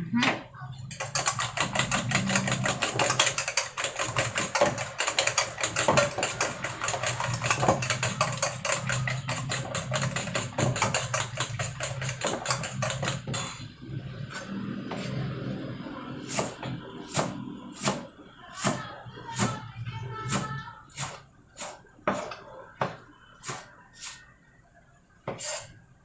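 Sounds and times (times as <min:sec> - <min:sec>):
rapid tapping of kitchen utensil: 0:00.9 - 0:13.6.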